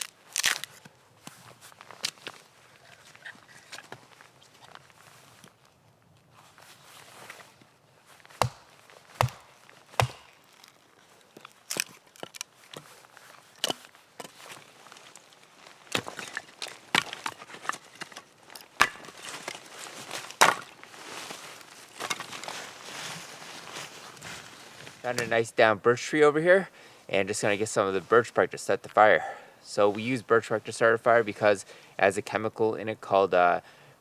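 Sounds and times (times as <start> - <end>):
rustle of wood and forest litter: 0.0 - 25.5
axe chopping wood: 8.4 - 10.6, 13.6 - 14.4, 15.9 - 17.4, 18.8 - 19.4, 20.3 - 20.8
wood knocking and cracking: 8.4 - 10.8, 15.9 - 19.6, 20.2 - 20.8.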